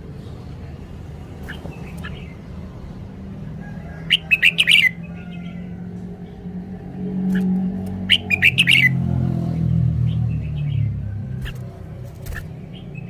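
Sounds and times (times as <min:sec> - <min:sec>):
bird song notes: 0:00.2 - 0:03.0, 0:03.6 - 0:13.0
sharp bird ticks: 0:01.4 - 0:02.4, 0:07.2 - 0:09.0, 0:11.4 - 0:13.0.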